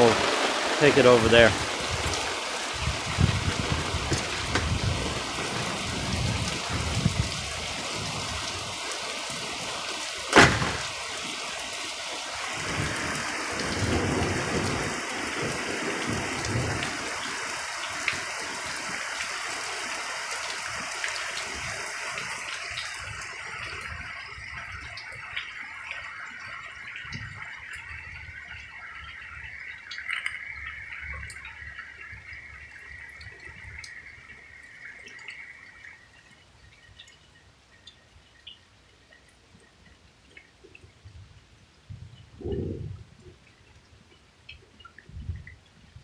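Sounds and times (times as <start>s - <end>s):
steady rain: 0.0s - 46.0s
sharp thunder crack: 10.4s - 11.3s
low rolls of thunder: 12.6s - 17.3s.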